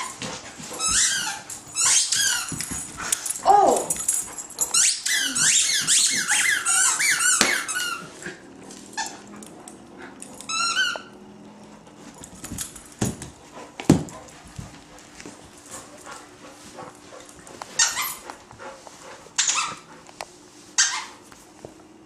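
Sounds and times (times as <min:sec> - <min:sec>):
rubber squeaky toy squeaks: 0:04.8 - 0:08.1, 0:17.8 - 0:18.2.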